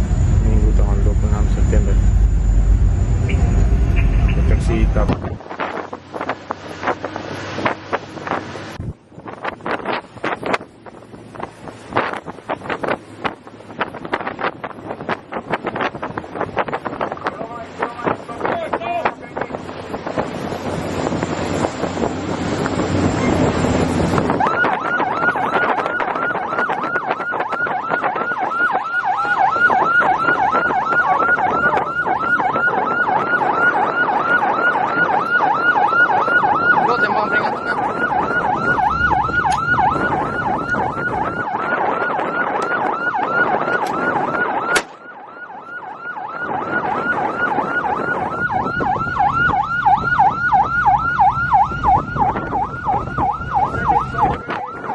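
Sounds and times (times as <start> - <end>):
boat engine noise: 0.0 - 26.5, 29.0 - 42.6
wind: 0.0 - 54.9
electronic siren yelping: 22.6 - 54.9.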